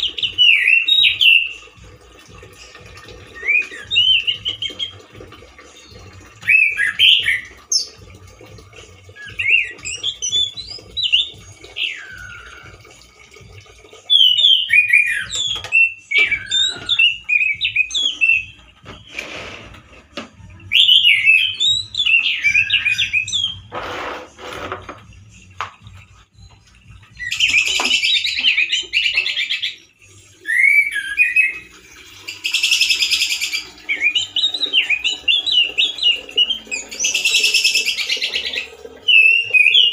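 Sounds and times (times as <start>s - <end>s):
thrush singing whistled phrases: 0.0s - 1.8s, 2.6s - 8.1s, 8.8s - 13.2s, 14.1s - 19.2s, 20.6s - 23.7s, 27.1s - 39.9s
harsh buzzy rasping bird notes: 14.1s - 25.5s.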